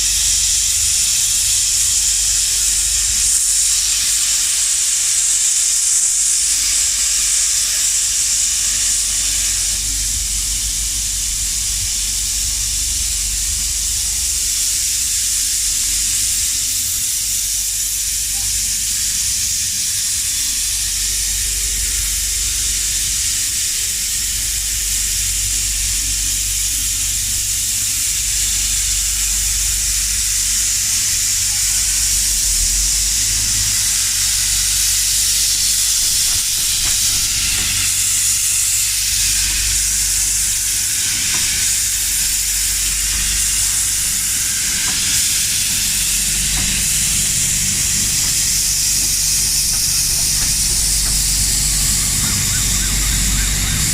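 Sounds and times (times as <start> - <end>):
steam locomotive hissing: 0.0 - 53.9
low rumble: 45.4 - 53.9.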